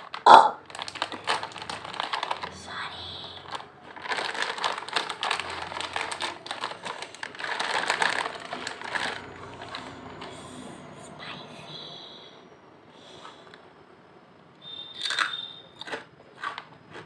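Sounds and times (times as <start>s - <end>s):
potato chips being chewed: 0.0s - 10.5s, 15.0s - 17.0s.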